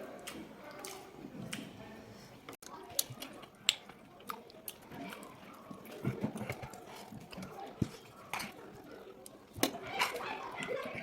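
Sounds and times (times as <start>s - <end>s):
person chewing food: 2.6s - 10.2s.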